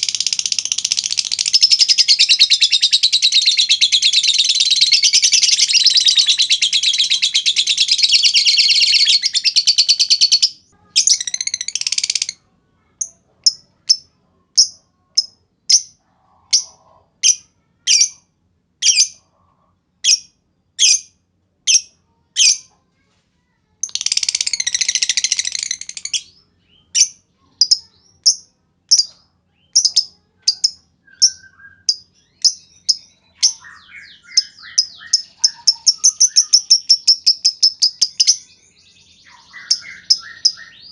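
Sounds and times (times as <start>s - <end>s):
sharp bird chirps: 23.8s - 40.9s
bird calling shrill trills: 30.6s - 38.5s, 39.2s - 40.9s.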